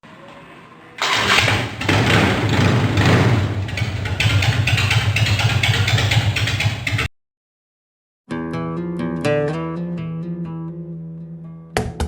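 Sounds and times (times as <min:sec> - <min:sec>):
motorcycle engine running: 0:01.0 - 0:07.1.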